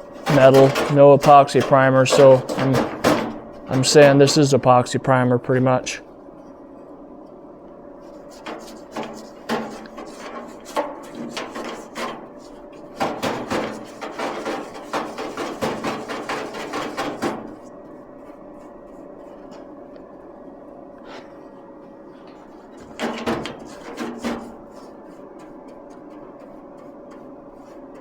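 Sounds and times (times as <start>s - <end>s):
knocks and rattles of objects: 0.0s - 4.5s, 8.3s - 17.7s, 22.3s - 28.0s
faint steady hum: 0.0s - 28.0s.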